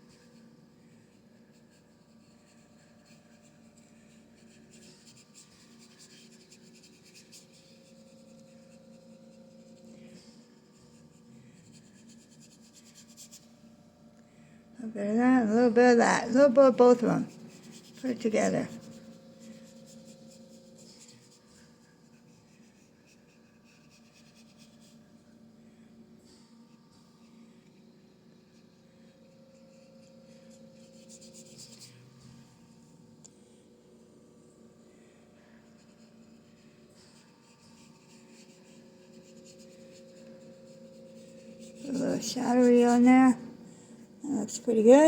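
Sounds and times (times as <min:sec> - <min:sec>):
steady low hum: 0:00.0 - 0:45.0
paintbrush rubbing on canvas: 0:01.0 - 0:13.6, 0:16.6 - 0:25.1, 0:35.7 - 0:43.4.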